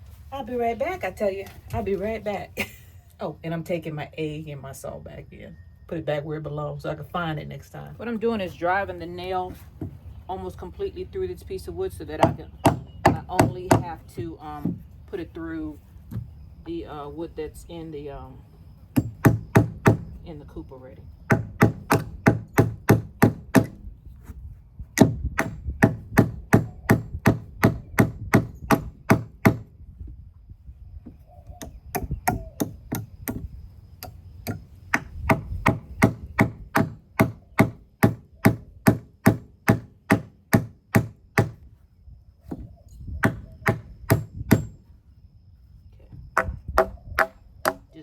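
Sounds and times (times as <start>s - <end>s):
hammer striking nail into wood: 12.2s - 13.9s, 19.0s - 20.1s, 21.3s - 23.8s, 25.0s - 29.7s, 31.6s - 41.6s, 43.2s - 44.7s, 46.4s - 47.9s.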